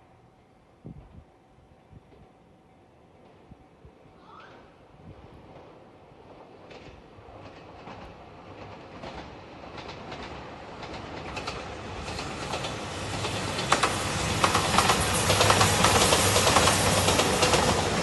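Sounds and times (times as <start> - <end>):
passenger train passing: 0.0 - 18.0
wheels clicking over rail joints: 6.6 - 18.0.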